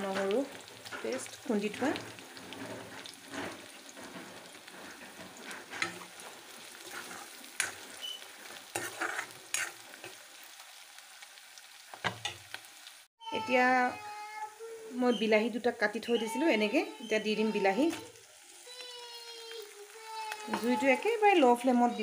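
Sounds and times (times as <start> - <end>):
metal spoon scraping a pan: 0.0 - 10.2, 16.0 - 18.2, 20.1 - 22.0
onions sizzling in hot oil: 0.0 - 22.0.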